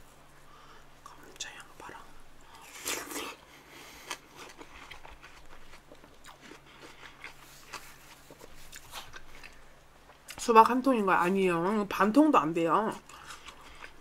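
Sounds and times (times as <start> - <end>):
chewing with crunches: 2.6 - 10.4, 12.9 - 14.0.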